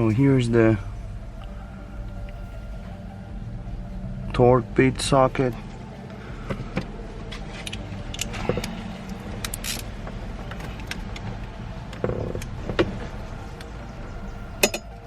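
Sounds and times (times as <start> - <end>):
steady low hum: 0.0 - 15.0
tools clicking against metal: 14.6 - 14.9.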